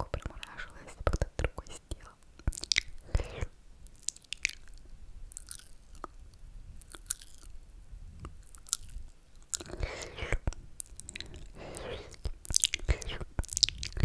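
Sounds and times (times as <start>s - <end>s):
lip smacks: 0.0s - 7.6s, 8.2s - 14.0s
moist mouth clicks: 0.0s - 7.6s, 8.2s - 14.0s
wet slurps: 9.6s - 10.4s, 11.0s - 14.0s.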